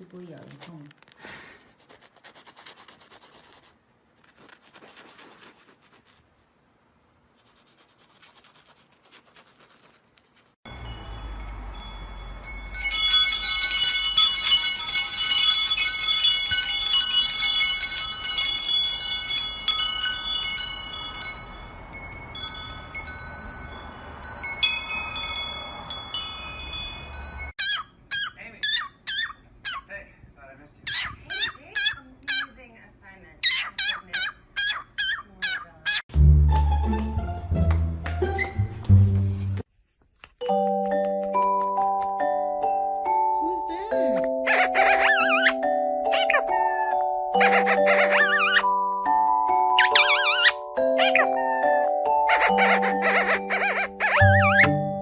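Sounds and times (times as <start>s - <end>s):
faint scratching: 0.0s - 6.5s, 7.3s - 10.6s
metal chimes ringing: 10.7s - 27.6s, 41.9s - 55.0s.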